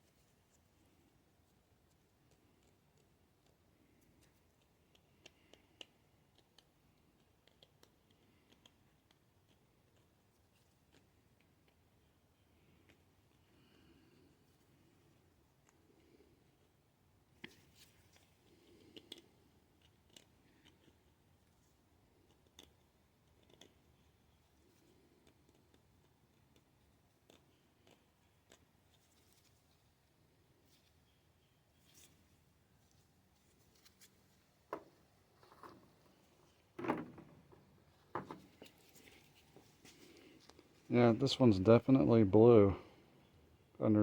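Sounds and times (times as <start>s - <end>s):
knocks and scrapes of handling: 30.7s - 40.9s.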